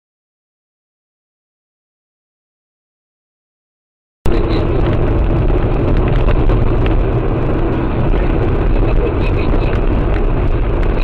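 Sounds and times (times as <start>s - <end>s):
car road and engine noise: 4.3s - 11.0s.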